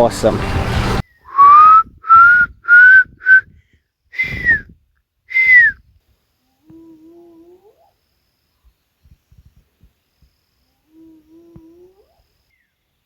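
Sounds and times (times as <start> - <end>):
whistled owl call: 1.2 - 3.4, 4.2 - 4.7, 5.3 - 5.8.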